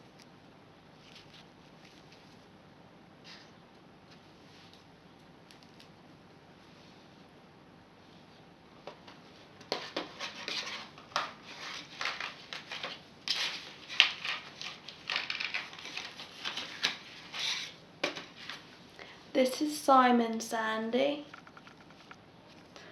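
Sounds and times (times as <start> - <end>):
toy packaging clicks and rustles: 9.8 - 18.7, 21.2 - 22.8.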